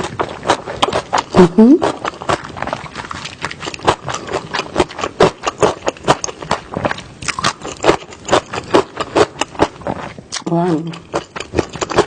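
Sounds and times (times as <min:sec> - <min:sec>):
chewing with wet crunching: 0:00.0 - 0:12.0.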